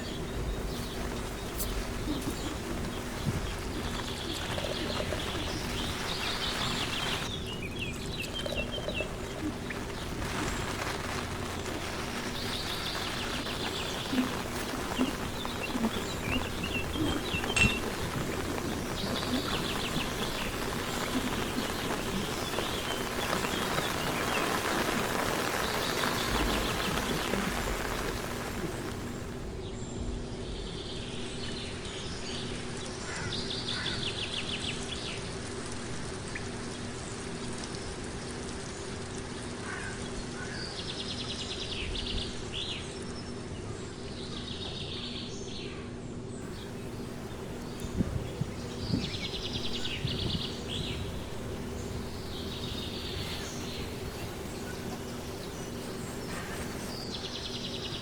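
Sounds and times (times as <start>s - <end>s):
songbird trilling: 0.0s - 29.3s, 46.5s - 58.0s
background hiss: 0.0s - 29.9s, 46.4s - 58.0s.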